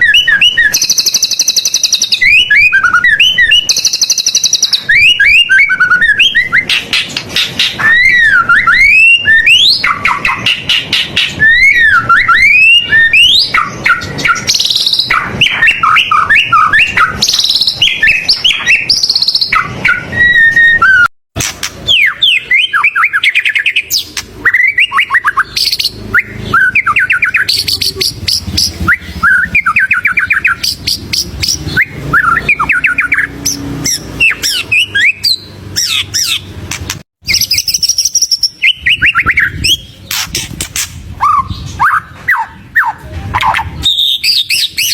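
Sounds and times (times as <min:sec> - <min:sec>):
songbird singing varied song: 0:00.0 - 0:21.0, 0:21.8 - 0:36.6, 0:37.2 - 0:44.9.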